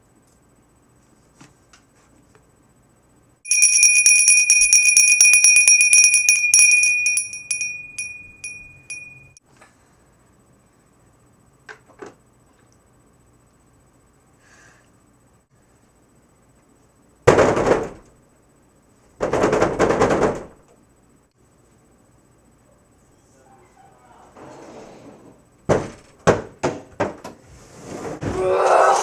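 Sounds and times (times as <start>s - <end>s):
small metal bell ringing: 3.5s - 9.4s.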